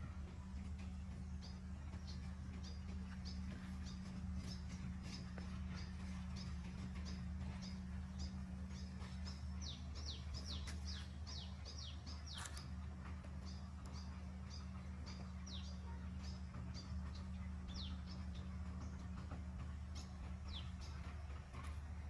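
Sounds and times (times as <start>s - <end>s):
low hum: 0.0s - 22.0s
small birds chirping: 0.3s - 22.0s.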